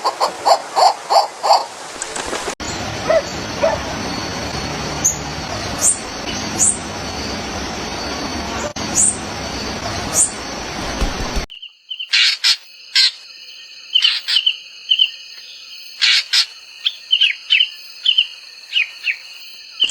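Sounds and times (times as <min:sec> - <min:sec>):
small songbirds chirping: 0:02.6 - 0:07.4, 0:08.8 - 0:10.4, 0:11.5 - 0:19.9
steady high tone: 0:02.6 - 0:11.4
loud steady rushing noise: 0:02.6 - 0:11.5.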